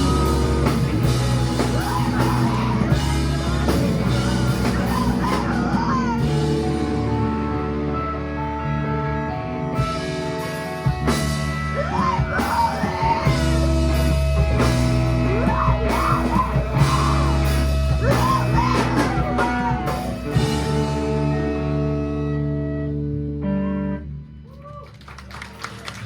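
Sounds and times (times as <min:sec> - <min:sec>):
person singing: 0:00.0 - 0:07.7, 0:11.8 - 0:14.2, 0:15.1 - 0:20.7
drums: 0:00.0 - 0:23.4, 0:24.4 - 0:26.0
electric guitars: 0:00.0 - 0:24.8.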